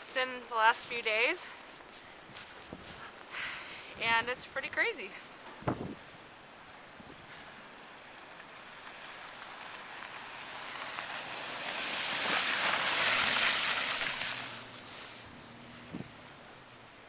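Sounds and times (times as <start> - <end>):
tyres hissing on snowy street: 4.8 - 16.7
faint low engine hum: 14.0 - 17.0.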